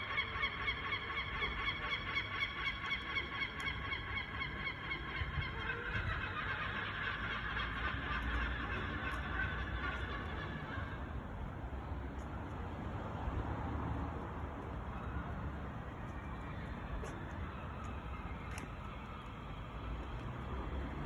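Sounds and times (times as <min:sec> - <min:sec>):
gulls calling: 0:00.0 - 0:11.5.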